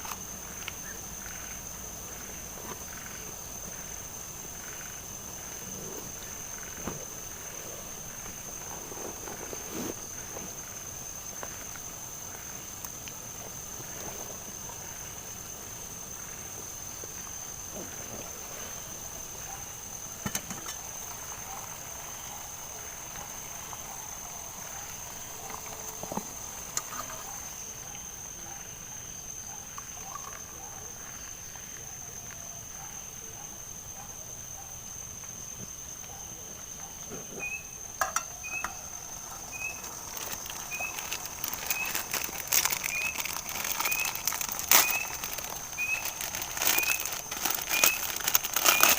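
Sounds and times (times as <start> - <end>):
faint low rhythmic insect calls: 0.0 - 48.9
high-pitched cricket trill: 0.0 - 48.9
crackling clicks: 39.8 - 48.9.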